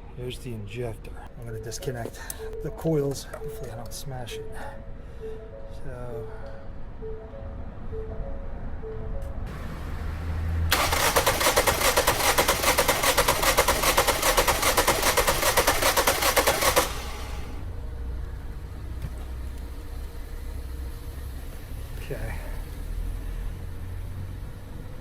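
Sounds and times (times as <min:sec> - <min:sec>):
car engine cranking: 0:09.5 - 0:17.7.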